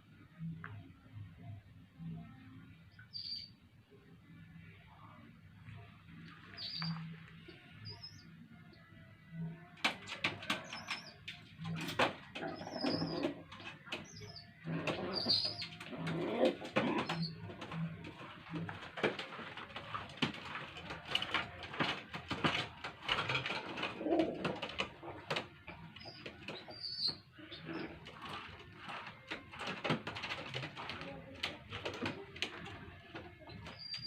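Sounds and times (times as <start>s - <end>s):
pigeons cooing: 9.8s - 34.0s
squabs squeaking: 10.1s - 34.0s.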